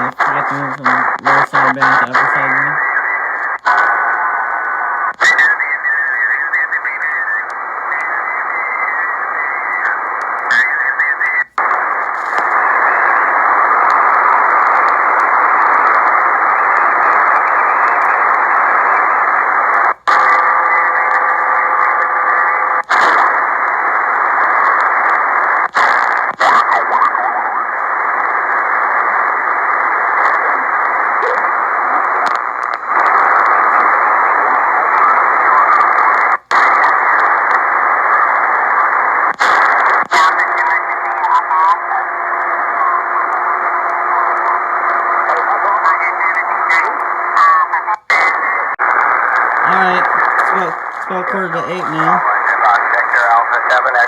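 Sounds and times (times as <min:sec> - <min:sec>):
faint radio tone: 0:00.0 - 0:22.8, 0:40.1 - 0:54.0
radio static hiss: 0:00.0 - 0:54.0.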